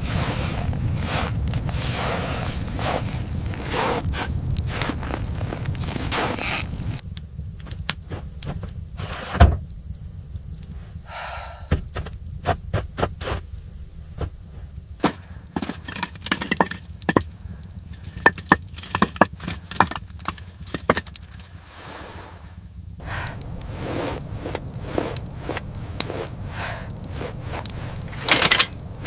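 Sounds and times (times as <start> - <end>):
steady low rumble: 0.0 - 29.0
sharp knocks and cracks: 15.0 - 21.6.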